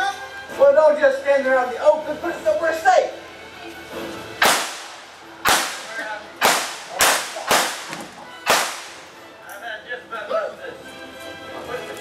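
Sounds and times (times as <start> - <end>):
blank gunshots: 4.4 - 9.2.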